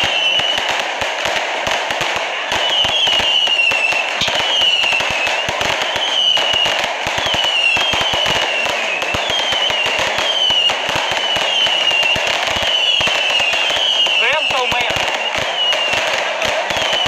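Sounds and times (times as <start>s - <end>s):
firework whistle: 0.0s - 17.0s
fireworks bangs and crackling: 0.0s - 17.0s.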